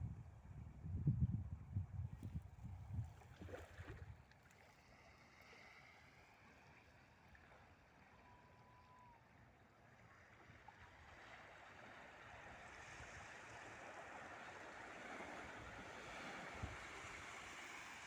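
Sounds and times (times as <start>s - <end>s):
waves washing against riverbank: 11.5s - 18.0s.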